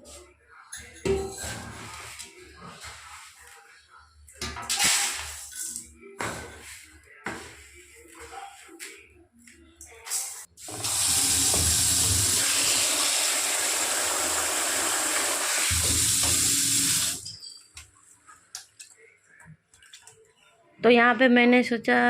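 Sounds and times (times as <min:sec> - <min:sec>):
water running from a tap: 0:10.6 - 0:17.3.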